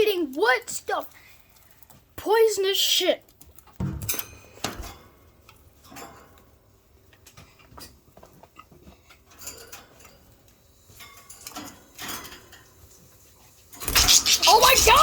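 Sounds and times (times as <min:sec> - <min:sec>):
bird beak pecking wood: 0:13.9 - 0:15.0.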